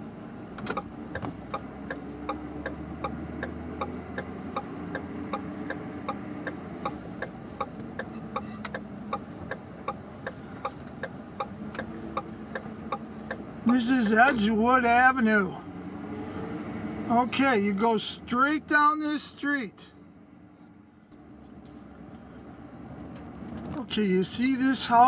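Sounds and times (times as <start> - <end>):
low engine hum: 0.0 - 25.0
turn signal clicking: 0.5 - 14.1.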